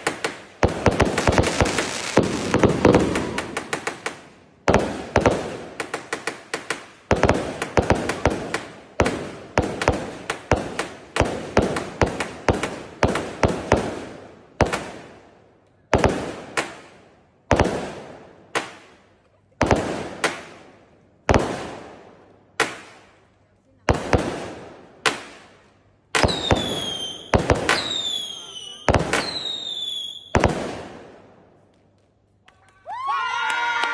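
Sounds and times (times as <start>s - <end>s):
firecrackers banging: 0.0s - 15.1s.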